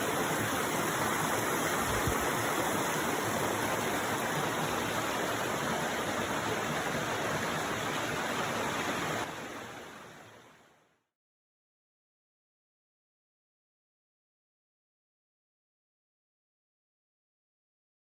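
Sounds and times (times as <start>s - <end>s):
mountain stream rushing: 0.0s - 10.8s.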